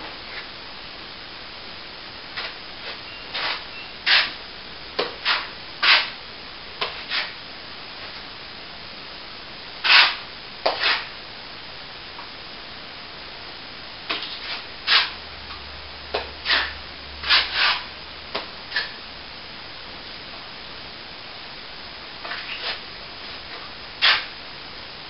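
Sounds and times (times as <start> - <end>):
faint steady hiss: 0.0 - 25.0
plastering tool scraping wall: 2.4 - 4.4, 5.1 - 6.2, 6.8 - 7.4, 9.8 - 11.1, 14.1 - 15.2, 16.4 - 17.9, 22.2 - 22.8, 24.0 - 24.3.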